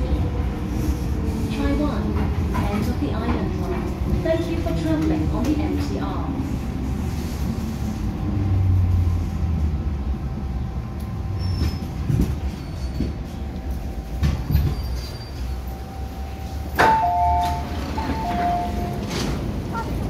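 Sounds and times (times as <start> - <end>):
train car rumbling: 0.0 - 20.0
two-note beeping tone: 16.8 - 19.0.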